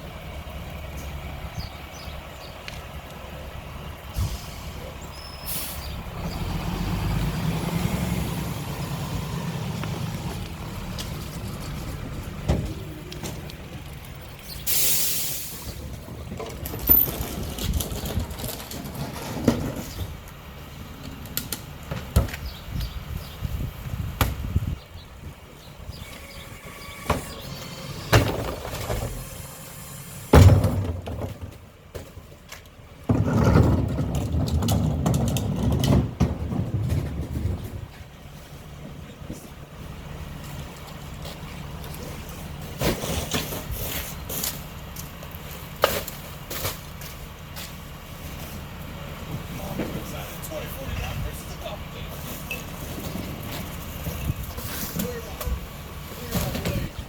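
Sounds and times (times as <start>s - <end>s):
truck engine rumbling: 0.0s - 57.0s
air hiss: 14.6s - 15.7s
sharp knocks and clanks: 30.3s - 32.4s.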